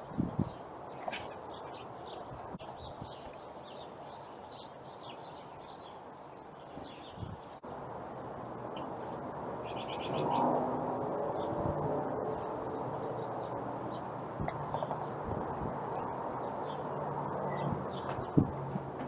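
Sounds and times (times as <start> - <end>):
wind on microphone: 0.0 - 0.7, 2.3 - 3.3, 6.8 - 7.6, 11.1 - 19.0
low outdoor noise: 0.0 - 19.0
wild birds chirping: 0.0 - 19.0.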